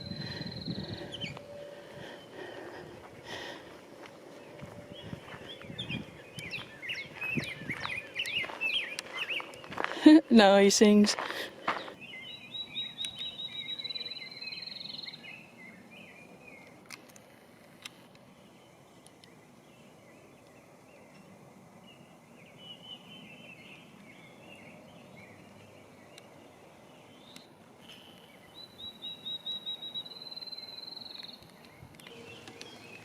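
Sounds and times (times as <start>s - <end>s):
bird trill of high notes: 32.0s - 33.0s.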